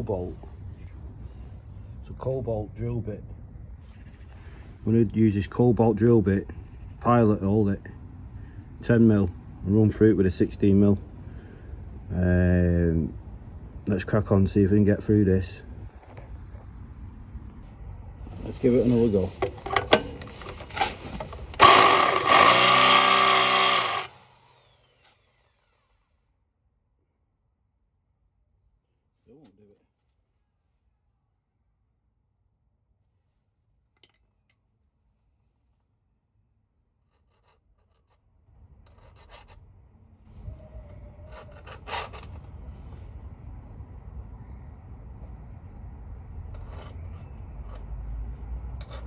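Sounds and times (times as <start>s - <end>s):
electric drill against steel: 19.4s - 26.0s.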